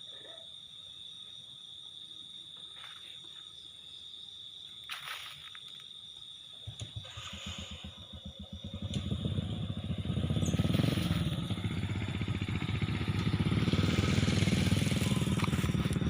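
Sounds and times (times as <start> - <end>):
crickets trilling: 0.0 - 16.0
low pulsing engine: 6.6 - 16.0.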